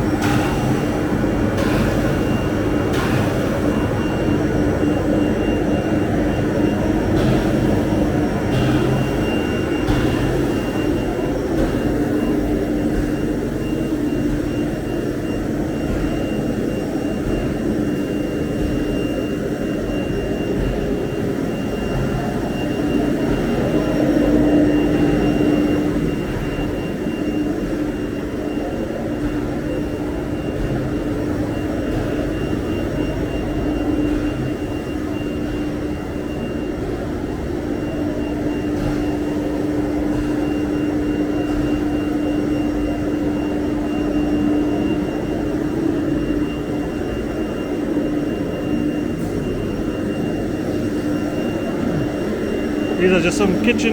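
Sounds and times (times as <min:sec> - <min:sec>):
machinery rushing noise: 0:52.8 - 0:53.9.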